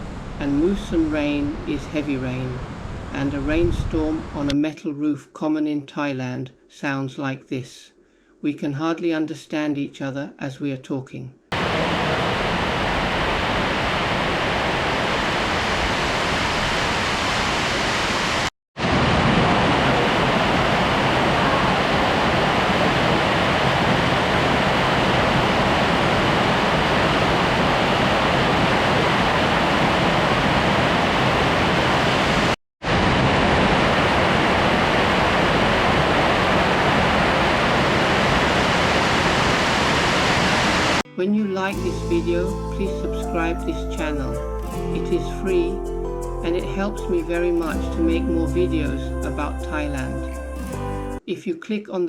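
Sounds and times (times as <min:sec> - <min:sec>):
heavy rain on a metal roof: 0:11.6 - 0:15.4, 0:18.4 - 0:41.0.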